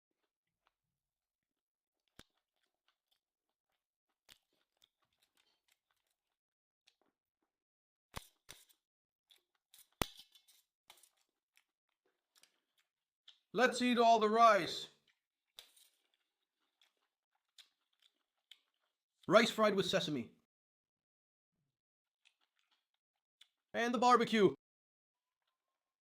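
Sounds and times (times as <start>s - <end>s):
person chewing food: 1.6s - 7.6s, 8.2s - 13.5s, 15.0s - 19.3s, 22.1s - 23.7s.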